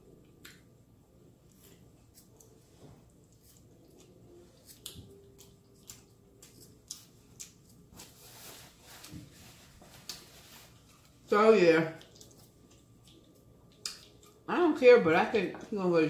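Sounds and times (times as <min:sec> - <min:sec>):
chewing and lip-smacking: 0:01.4 - 0:07.9, 0:11.9 - 0:14.5
paper napkin rustling: 0:07.8 - 0:11.2.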